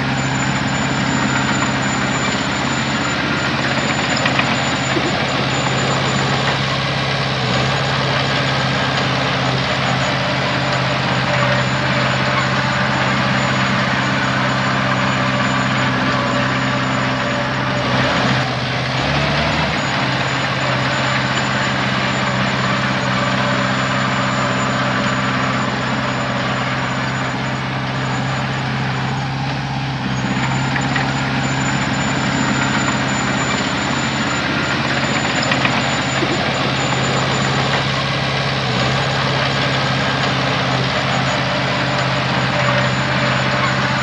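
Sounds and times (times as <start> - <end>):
heavy diesel engine running: 0.0 - 44.0.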